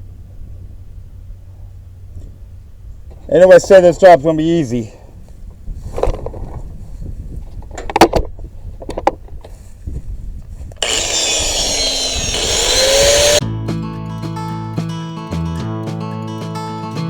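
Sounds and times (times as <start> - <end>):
angle grinder grinding steel: 10.8 - 13.4
strummed acoustic guitar music: 13.4 - 17.0.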